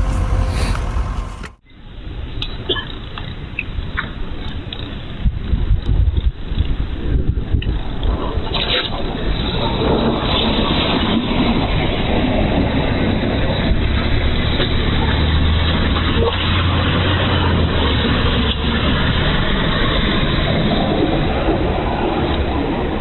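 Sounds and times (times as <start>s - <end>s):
deep low hum: 0.0s - 23.0s
snow clearing machine engine: 7.8s - 23.0s.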